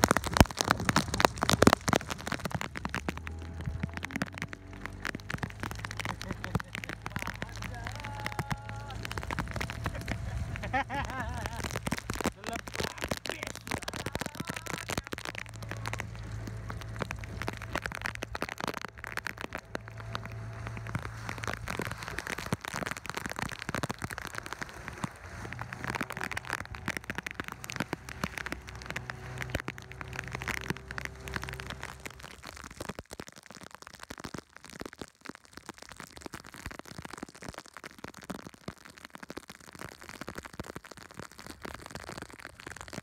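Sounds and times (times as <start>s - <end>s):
heavy rain on boat and sea: 0.0s - 43.0s.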